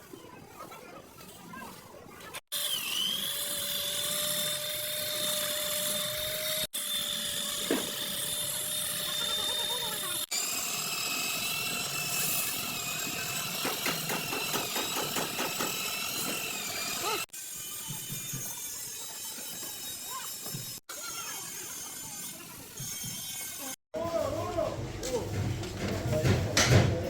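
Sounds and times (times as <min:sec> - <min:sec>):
rough chatter of tool on metal: 0:00.7 - 0:23.8
power tool whining: 0:02.5 - 0:20.8.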